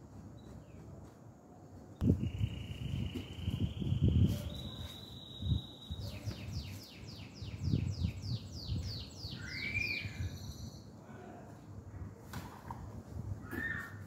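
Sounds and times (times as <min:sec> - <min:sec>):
songbird singing: 0:01.9 - 0:11.0.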